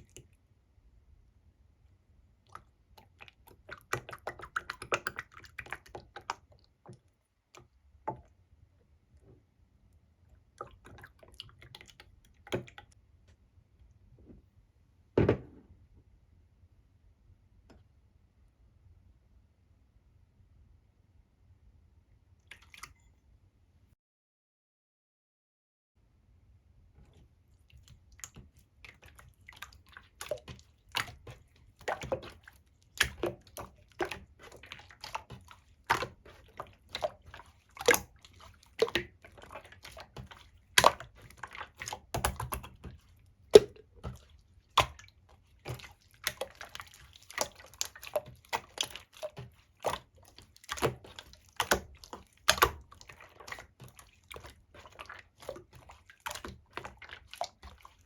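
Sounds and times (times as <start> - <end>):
wet clicks and pops of slime: 50.7 - 52.8.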